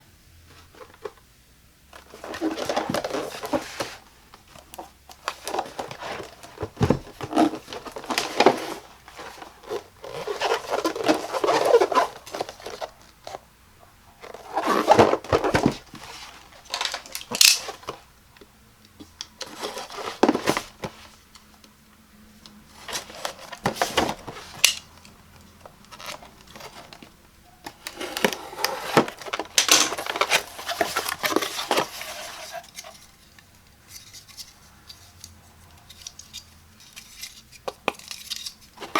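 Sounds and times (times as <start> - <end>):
packaging rustling and tearing: 2.0 - 13.4, 14.2 - 18.0, 22.8 - 25.0, 27.7 - 33.0.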